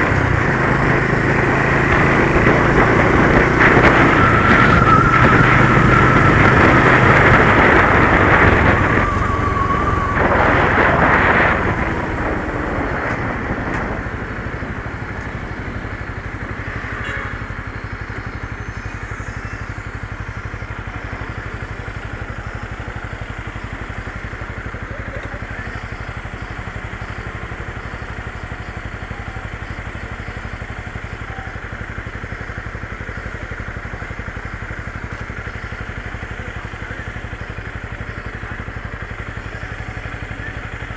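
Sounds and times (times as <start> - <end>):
rushing noise: 0.0 - 23.4
motorcycle engine: 0.0 - 40.9.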